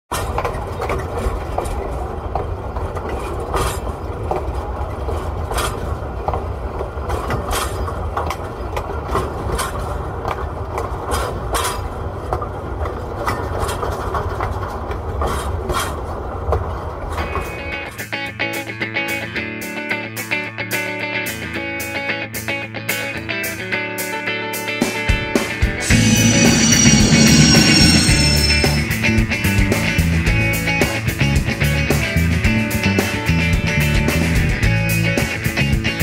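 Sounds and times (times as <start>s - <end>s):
train wheels clicking over rail joints: 0.1s - 16.7s
train rumble: 25.8s - 29.9s.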